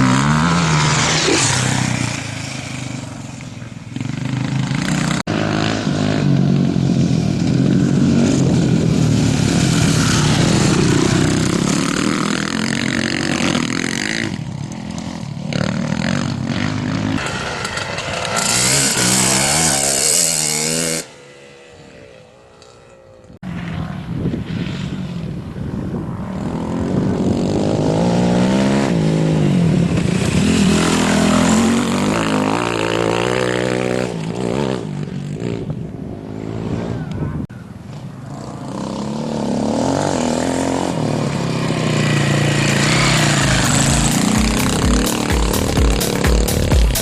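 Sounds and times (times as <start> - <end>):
racing motorcycle engines revving: 0.0 - 37.4, 38.0 - 47.0.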